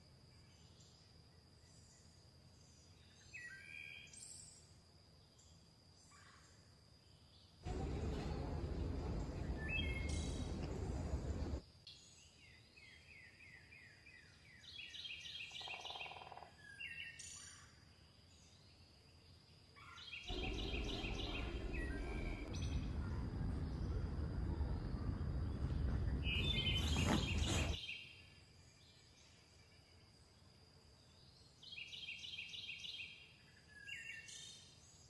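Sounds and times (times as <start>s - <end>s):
small birds chirping: 7.7s - 11.6s, 19.9s - 27.8s
steady rushing outdoor noise: 7.7s - 11.6s, 20.3s - 27.8s.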